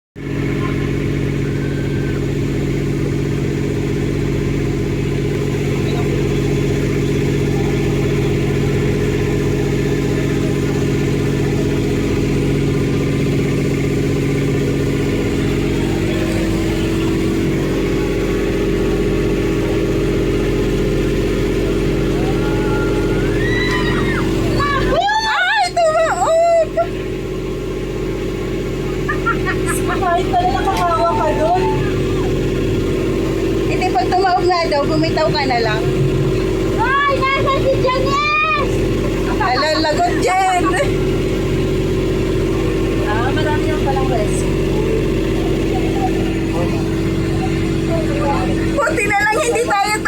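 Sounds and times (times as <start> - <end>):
boat engine running: 0.2 - 50.0.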